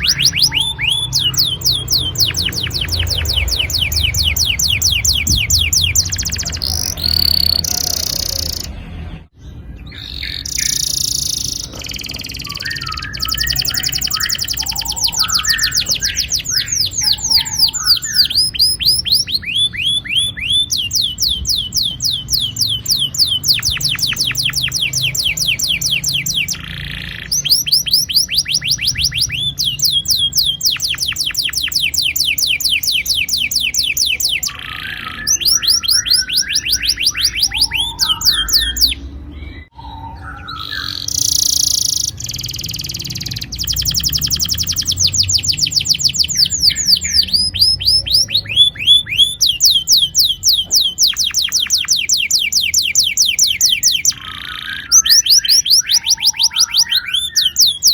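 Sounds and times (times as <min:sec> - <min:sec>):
canary chirps: 0:00.0 - 0:57.9
canary singing trills: 0:00.0 - 0:57.9.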